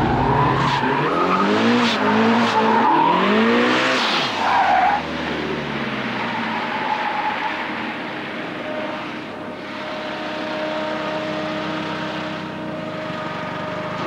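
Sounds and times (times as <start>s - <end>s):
car engine at steady revs: 8.1s - 14.0s.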